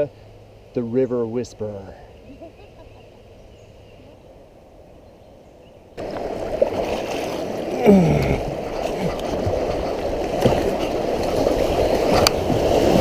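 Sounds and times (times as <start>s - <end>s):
rushing river water: 6.0s - 13.0s.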